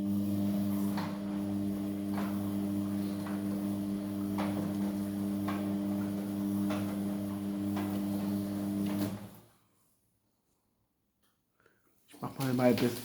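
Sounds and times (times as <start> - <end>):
washing machine motor hum: 0.0 - 9.6.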